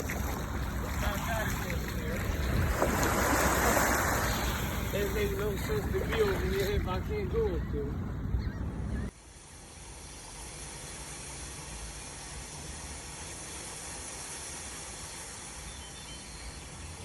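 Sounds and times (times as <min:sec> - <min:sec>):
ocean surf hissing: 0:00.0 - 0:07.5, 0:09.2 - 0:17.0.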